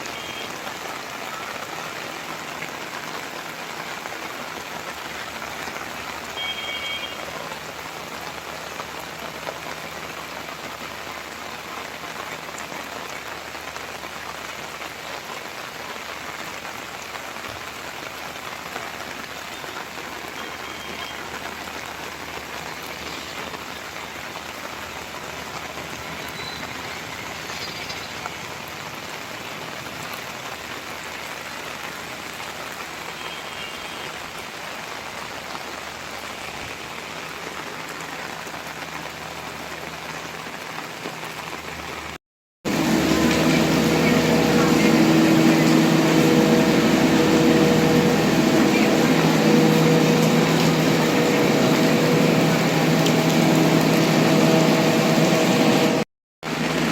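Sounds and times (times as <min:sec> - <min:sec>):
rain pattering: 0:00.0 - 0:56.9
faint high chirps: 0:26.1 - 0:28.3.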